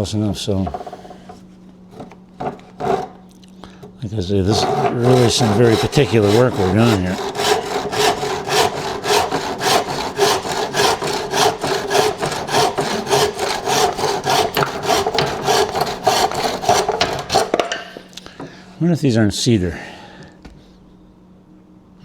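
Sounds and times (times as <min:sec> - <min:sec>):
hand saw cutting wood: 0:00.6 - 0:03.2, 0:04.3 - 0:18.0.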